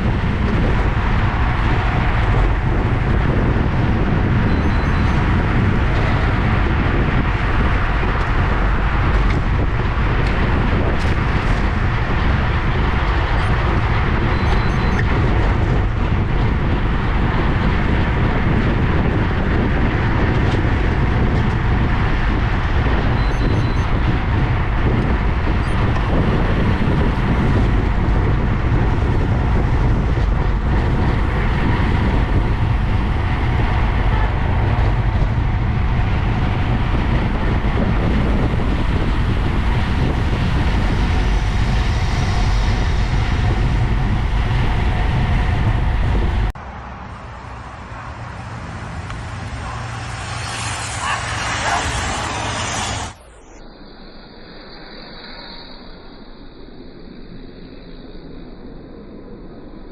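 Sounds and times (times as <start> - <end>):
tyre and road noise: 0.0 - 53.6
wind buffeting microphone: 0.0 - 53.6.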